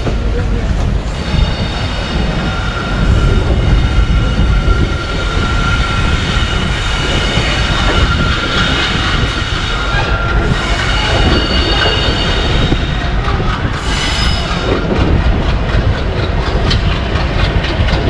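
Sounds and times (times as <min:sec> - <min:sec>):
train wheels rumbling on track: 0:00.0 - 0:18.0
high wheel squeal: 0:01.1 - 0:13.0, 0:13.7 - 0:15.0.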